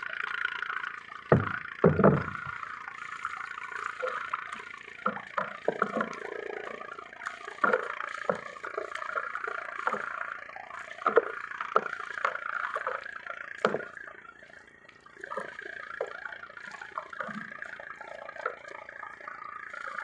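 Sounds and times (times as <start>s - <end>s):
water splashing and sloshing: 0.0s - 20.0s
short knocks: 1.3s - 2.6s.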